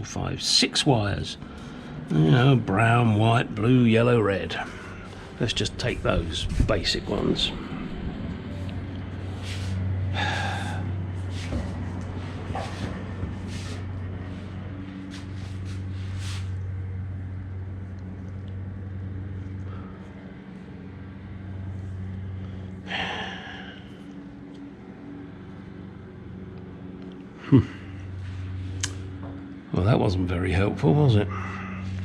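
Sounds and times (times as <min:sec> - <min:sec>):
low electrical hum: 0:00.0 - 0:32.0
breathy sigh: 0:10.1 - 0:11.1, 0:22.6 - 0:24.2, 0:27.4 - 0:28.2, 0:31.3 - 0:32.0.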